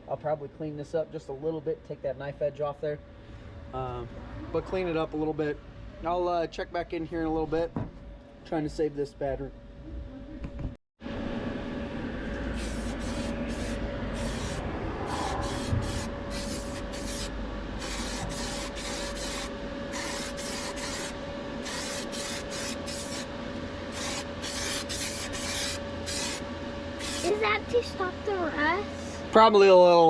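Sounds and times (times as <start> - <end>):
steady hum: 0.0 - 30.0
aerosol spray hissing bursts: 12.5 - 23.3, 23.9 - 26.4, 27.0 - 27.3.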